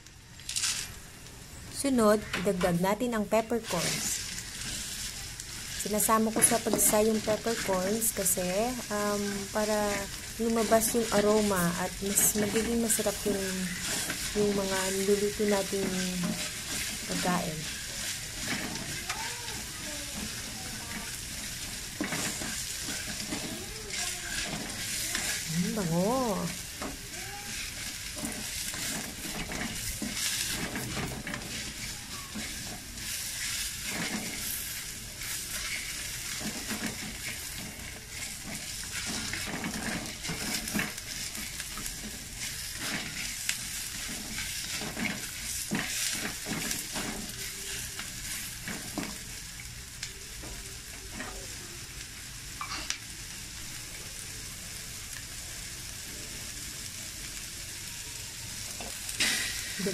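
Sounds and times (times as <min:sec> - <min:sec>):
onions sizzling in a wok: 0:00.0 - 0:59.9
spatula scraping a pan: 0:03.6 - 0:49.2.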